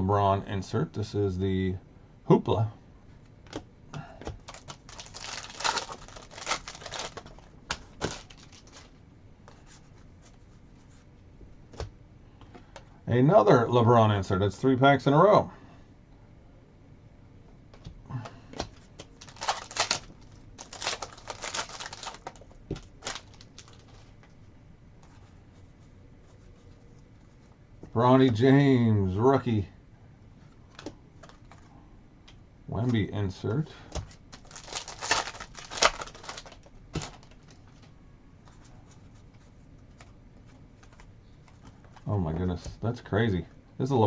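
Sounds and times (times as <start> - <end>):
trading cards snapping and rustling: 3.4 - 9.0, 17.8 - 24.2, 30.7 - 31.7, 33.9 - 39.0
foil wrapper crinkling: 4.4 - 9.0, 19.1 - 24.2, 34.1 - 37.8.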